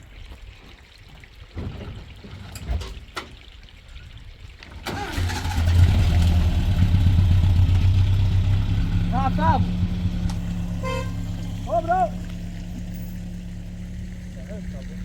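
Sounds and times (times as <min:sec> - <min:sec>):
vehicle engine starting and idling: 0:04.8 - 0:15.0.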